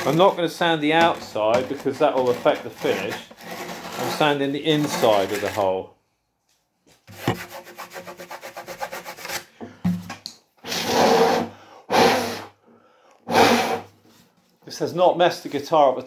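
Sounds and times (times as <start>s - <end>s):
sandpaper scraping wood: 0.0s - 5.8s, 7.1s - 9.5s, 10.6s - 12.5s, 13.3s - 13.9s.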